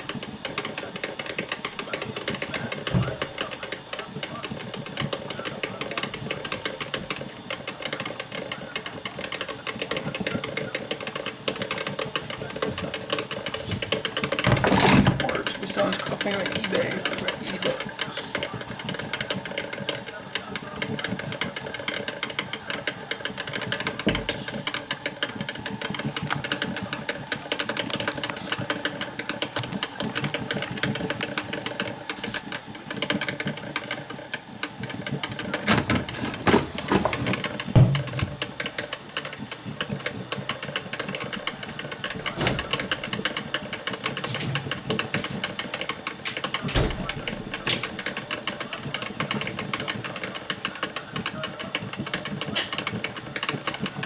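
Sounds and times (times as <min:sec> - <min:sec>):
coffee maker sputtering: 0:00.0 - 0:54.0
loud knocks: 0:35.7 - 0:38.5.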